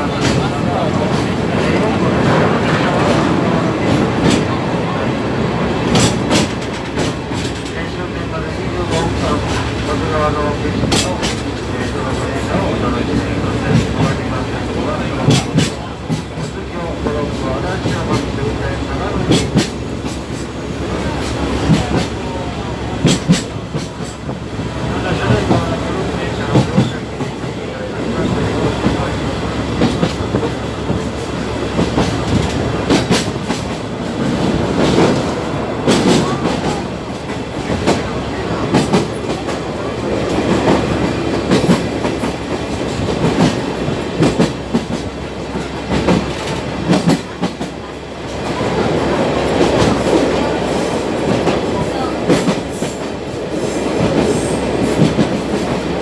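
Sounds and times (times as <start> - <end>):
train carriage rumble: 0.0 - 56.0
wheels clacking over rail joints: 0.0 - 56.0.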